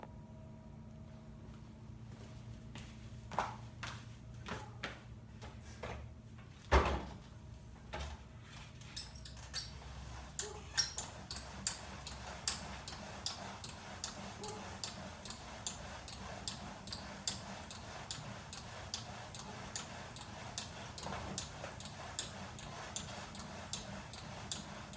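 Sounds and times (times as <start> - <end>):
climbing machine squeaking: 8.9 - 9.8, 10.4 - 24.9.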